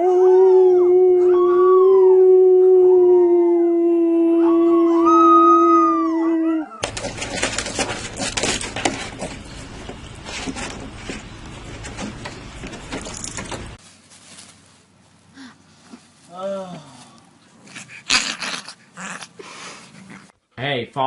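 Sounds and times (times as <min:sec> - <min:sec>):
dog howling: 0:00.0 - 0:06.8
scattered knocks: 0:06.8 - 0:13.8.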